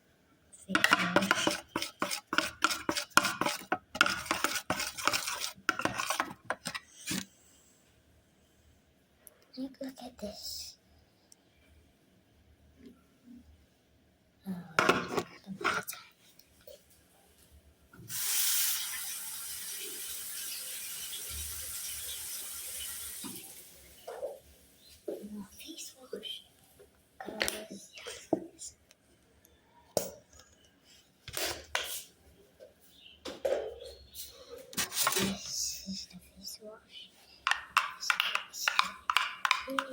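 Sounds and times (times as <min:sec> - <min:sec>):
utensil stirring and scraping slime: 0:00.6 - 0:07.3, 0:34.7 - 0:35.9, 0:37.4 - 0:39.9
utensil clinking against bowl: 0:00.7 - 0:06.8, 0:37.5 - 0:39.9
water running from a tap: 0:18.1 - 0:24.1.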